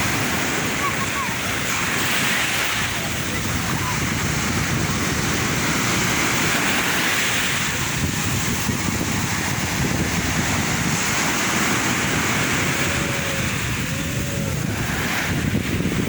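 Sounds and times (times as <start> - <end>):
waves washing in: 0.0 - 16.0.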